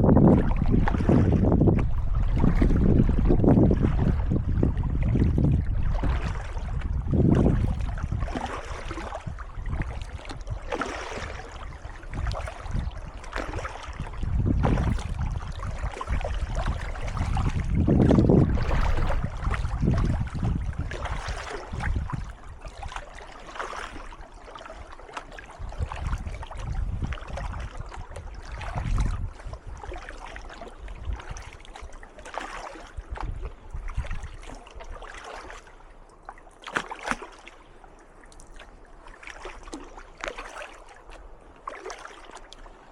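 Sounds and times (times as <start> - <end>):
low rumble: 0.0 - 6.0
kayak paddle splashing: 0.0 - 42.9.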